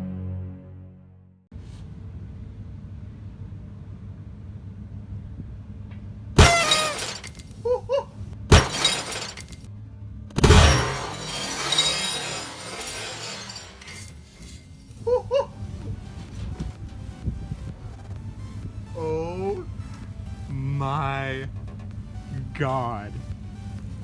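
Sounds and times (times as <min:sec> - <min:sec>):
glass plate shattering: 0:06.4 - 0:07.6, 0:08.5 - 0:09.6, 0:10.4 - 0:15.0.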